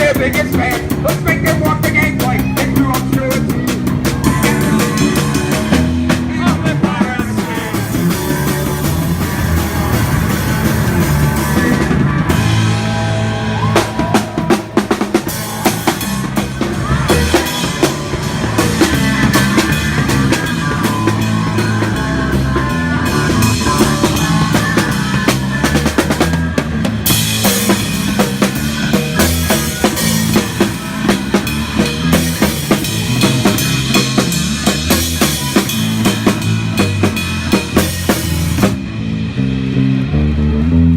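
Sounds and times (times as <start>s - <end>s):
live punk band playing: 0.0s - 40.9s
low bass line: 0.0s - 40.9s.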